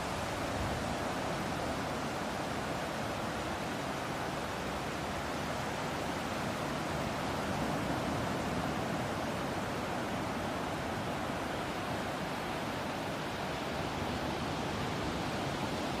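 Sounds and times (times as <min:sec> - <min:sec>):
sea breeze: 0:00.0 - 0:16.0.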